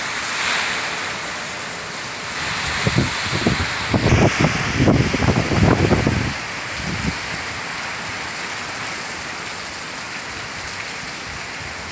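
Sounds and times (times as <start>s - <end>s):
heavy rain pouring: 0.0s - 11.9s
low gusty rumble: 0.6s - 7.8s.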